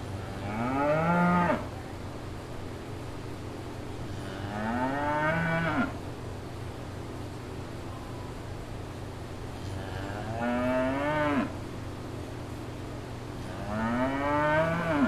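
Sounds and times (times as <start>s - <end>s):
steady low hum: 0.0s - 15.0s
cow mooing: 9.8s - 11.6s, 13.5s - 15.0s.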